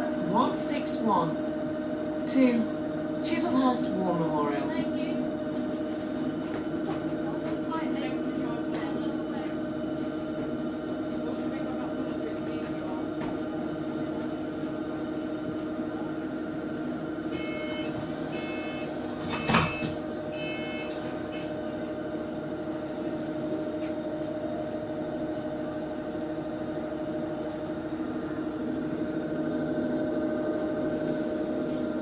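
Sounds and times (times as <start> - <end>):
bus engine drone: 0.0 - 32.0
hydraulic cooling fan hum: 16.4 - 31.9
short electronic beeps: 17.4 - 19.8.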